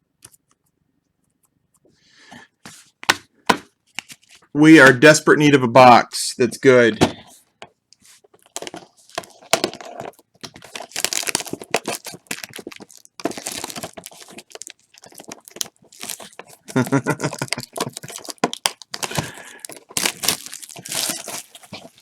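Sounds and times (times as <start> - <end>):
plastic and foil packaging crinkling: 8.1 - 22.0.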